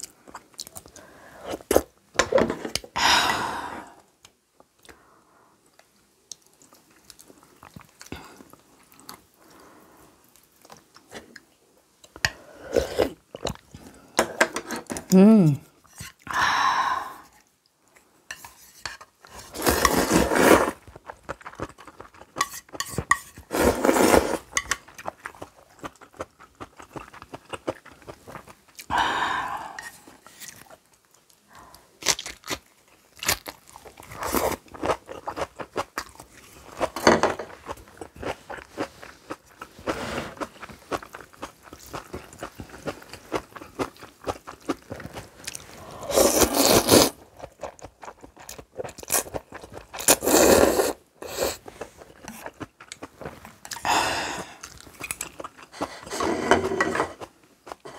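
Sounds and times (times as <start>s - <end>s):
crunchy chewing: 23.7s - 28.9s.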